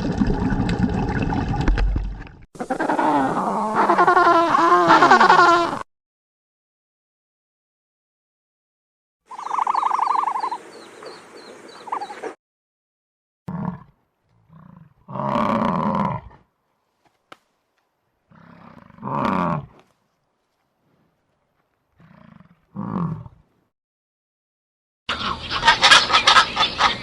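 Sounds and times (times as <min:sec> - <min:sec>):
large animal roaring: 0:13.5 - 0:13.9, 0:14.5 - 0:16.4, 0:18.3 - 0:19.8, 0:22.0 - 0:23.4.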